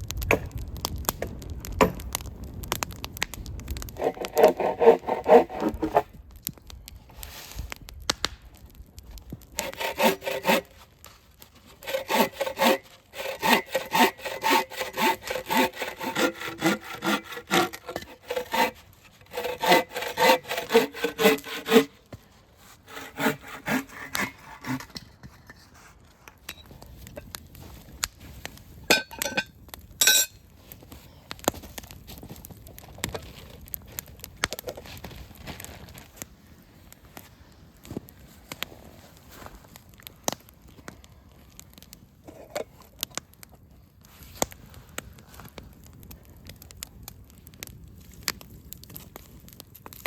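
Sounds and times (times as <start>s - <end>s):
hand saw cutting wood: 4.0s - 6.1s, 9.6s - 10.7s, 11.7s - 22.0s, 22.8s - 25.0s.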